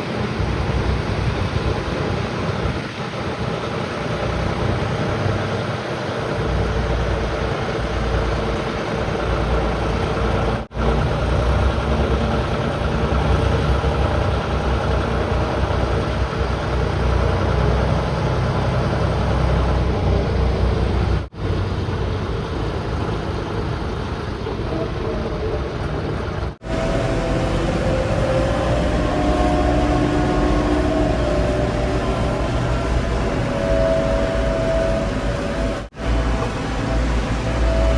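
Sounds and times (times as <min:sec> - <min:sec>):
heavy diesel engines running: 0:00.0 - 0:37.9
short steady higher tones: 0:26.6 - 0:37.9.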